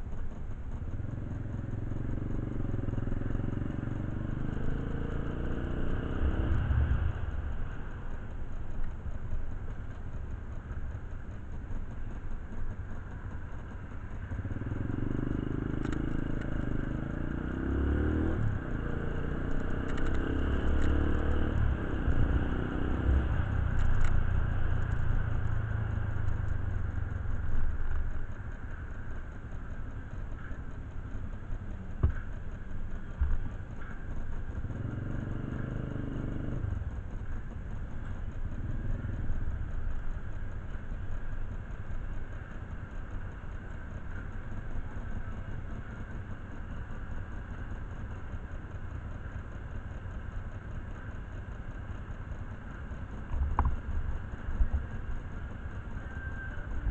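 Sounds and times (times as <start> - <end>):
motorcycle engine running: 0.0 - 56.9
light metallic clicks and clatter: 19.5 - 22.2, 23.3 - 56.9.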